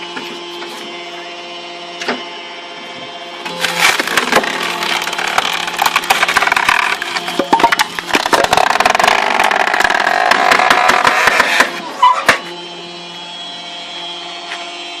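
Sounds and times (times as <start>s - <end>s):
machine humming: 0.0s - 15.0s
wood cracking and splintering: 3.4s - 11.8s.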